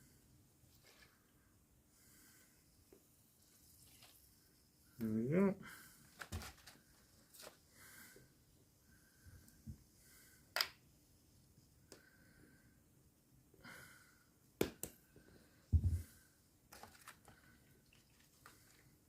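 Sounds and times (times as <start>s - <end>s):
faint breathing: 0.0s - 2.8s, 7.6s - 10.6s, 11.9s - 12.9s, 13.6s - 14.4s, 15.1s - 16.5s.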